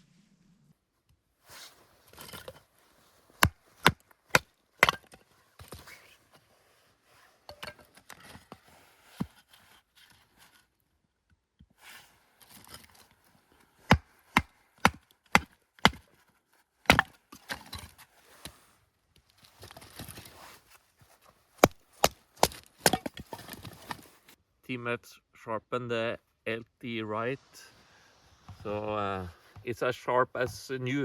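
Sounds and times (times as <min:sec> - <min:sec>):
soft scraping: 0:01.4 - 0:03.8, 0:17.5 - 0:22.0, 0:26.8 - 0:31.0
blade chopping wood: 0:03.4 - 0:05.8, 0:13.8 - 0:16.1, 0:16.8 - 0:17.9, 0:21.6 - 0:24.0.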